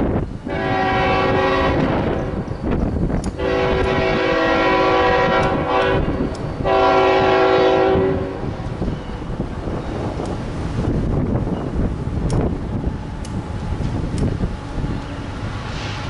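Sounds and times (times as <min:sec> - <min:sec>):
passing train rumble: 0:00.0 - 0:16.0
locomotive air horn blasts: 0:00.5 - 0:02.4, 0:03.4 - 0:08.5.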